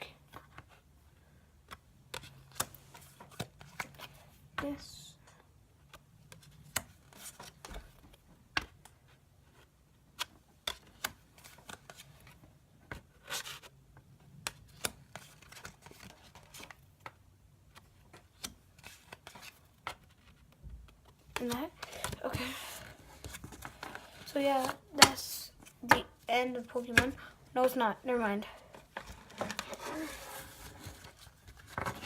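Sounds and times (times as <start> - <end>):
cards clicking and tapping: 17.8 - 22.6, 24.6 - 26.1, 26.8 - 27.2.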